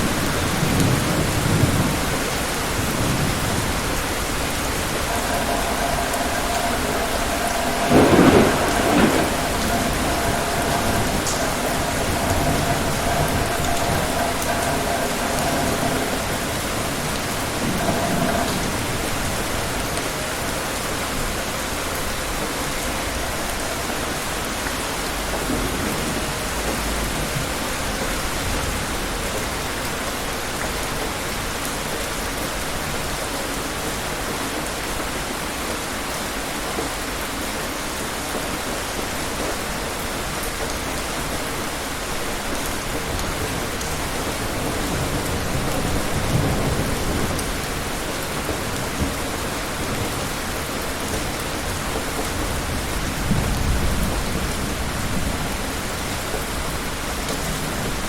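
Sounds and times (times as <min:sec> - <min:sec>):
distant thunder rumbles: 0:00.0 - 0:29.6
rain pouring down: 0:00.0 - 0:58.0.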